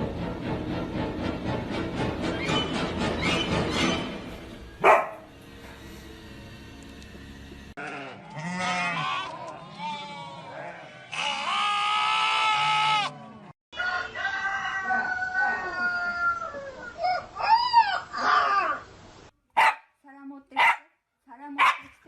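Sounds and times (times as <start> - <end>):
farm animal bleating calls: 7.8 - 13.4.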